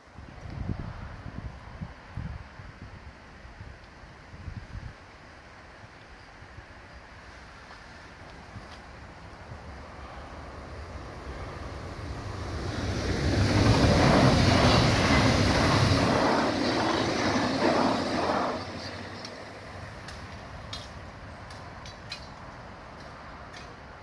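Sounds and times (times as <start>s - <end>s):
electric train rushing past: 9.7s - 22.2s.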